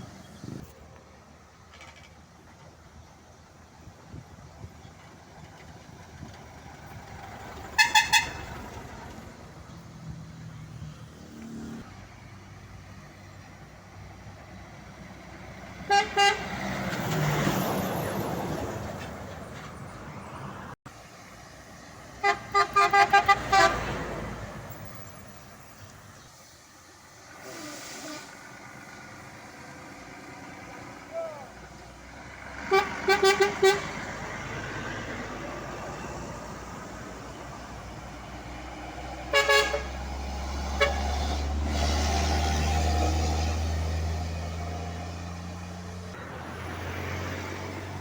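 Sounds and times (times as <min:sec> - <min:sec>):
truck driving past: 0:00.0 - 0:48.0
truck air horn blasts: 0:07.7 - 0:08.8, 0:15.8 - 0:16.8, 0:22.2 - 0:24.1, 0:32.6 - 0:34.1, 0:39.3 - 0:41.9.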